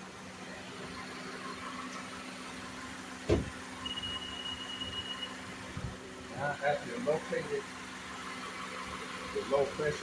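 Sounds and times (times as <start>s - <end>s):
car engine idling: 0.0s - 10.0s
thin high steady tone: 3.8s - 5.5s.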